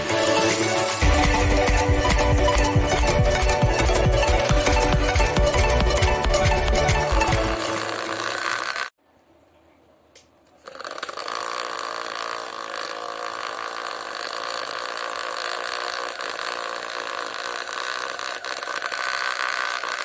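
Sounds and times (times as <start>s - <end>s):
vacuum cleaner motor humming: 0.0s - 8.9s.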